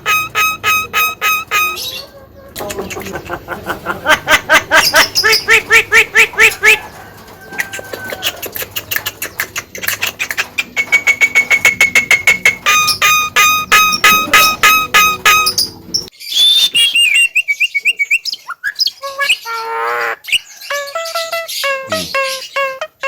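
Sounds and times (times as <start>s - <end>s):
bird singing ringing notes: 0.0s - 2.1s, 10.4s - 23.0s
bird whistle: 0.0s - 2.1s, 10.2s - 23.0s.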